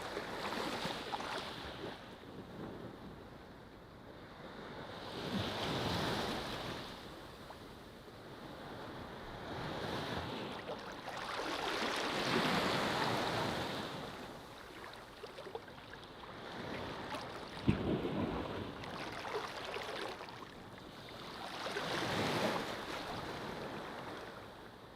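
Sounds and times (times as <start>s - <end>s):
ocean waves washing onto beach: 8.4s - 24.6s.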